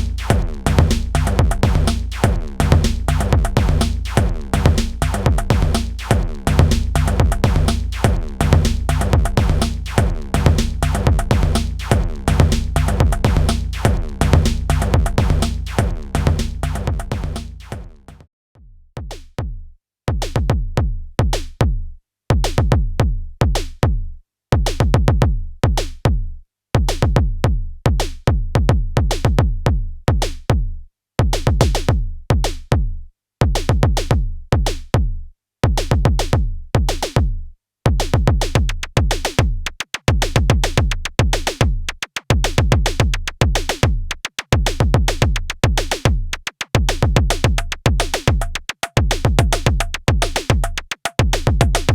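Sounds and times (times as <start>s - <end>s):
deep bass drum: 0.0s - 18.2s, 43.8s - 51.9s
electronic drum beat: 0.0s - 18.2s, 38.1s - 51.9s
fast clicking percussion: 0.0s - 18.2s, 38.6s - 51.9s.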